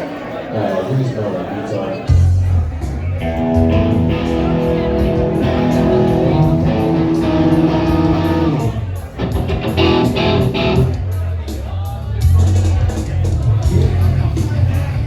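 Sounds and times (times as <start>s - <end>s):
electric guitar chords: 3.2s - 11.0s
live rock band playing: 3.2s - 11.4s.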